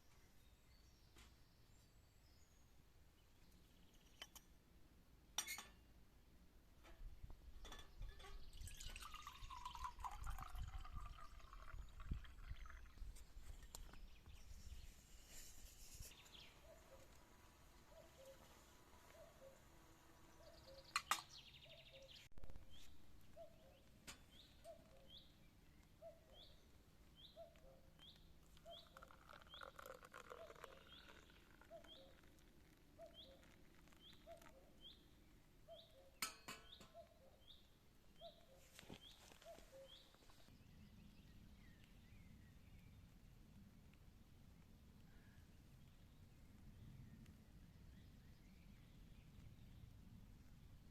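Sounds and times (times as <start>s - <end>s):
bird calls: 17.8s - 19.7s, 20.3s - 26.6s, 27.2s - 35.1s, 35.7s - 40.4s.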